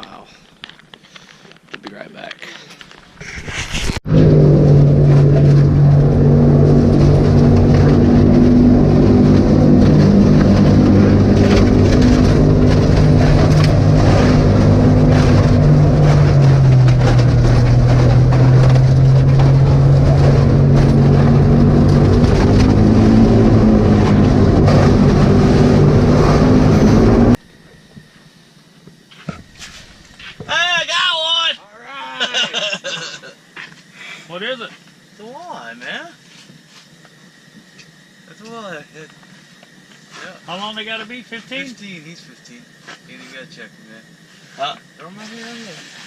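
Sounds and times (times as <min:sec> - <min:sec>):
airboat engine and propeller: 0:04.1 - 0:27.4.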